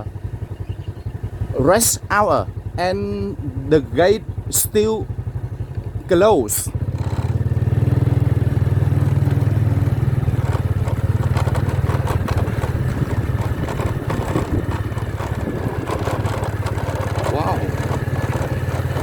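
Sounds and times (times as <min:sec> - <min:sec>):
motorcycle engine droning: 0:00.0 - 0:19.0.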